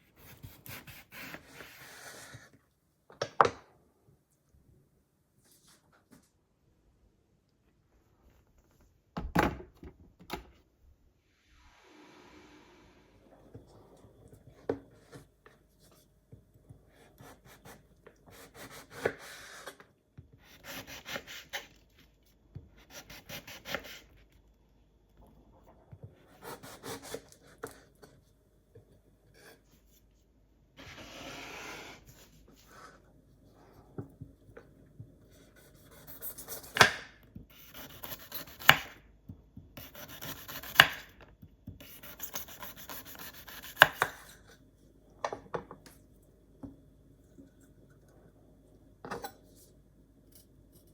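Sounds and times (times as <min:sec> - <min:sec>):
scraping on cutting board: 0:30.8 - 0:33.0.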